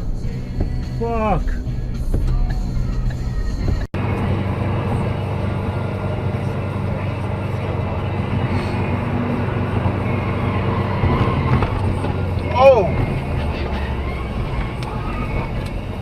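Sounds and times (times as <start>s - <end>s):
vehicle engine and road noise: 0.0s - 16.0s
steady low hum: 4.0s - 16.0s.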